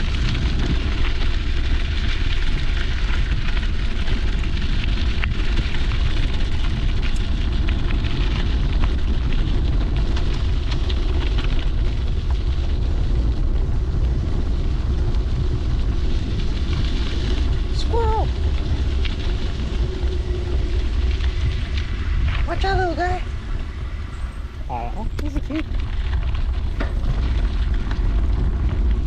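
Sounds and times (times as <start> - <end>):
bike clicks and rattles: 0.0 - 17.6, 24.0 - 29.0
wind buffeting microphone: 0.0 - 29.0.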